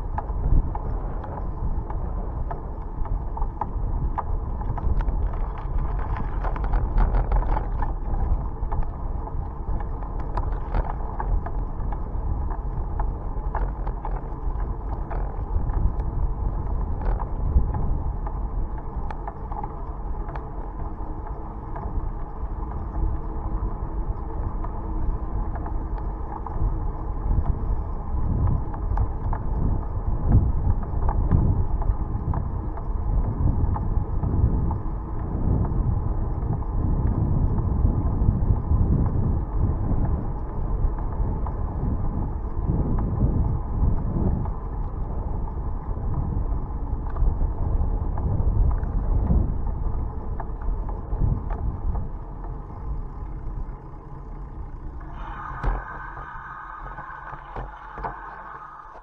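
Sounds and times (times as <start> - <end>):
bike rattles and clicks: 0.0 - 59.0
wind buffeting microphone: 0.0 - 59.0.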